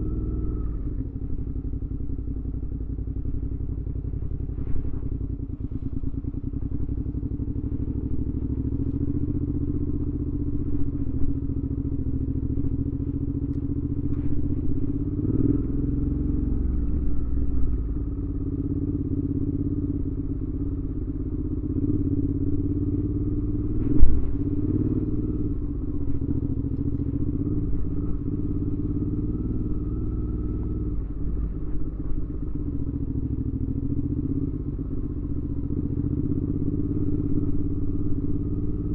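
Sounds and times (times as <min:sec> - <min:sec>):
motorcycle engine running: 0:00.0 - 0:38.9
sharp thump: 0:23.8 - 0:24.6.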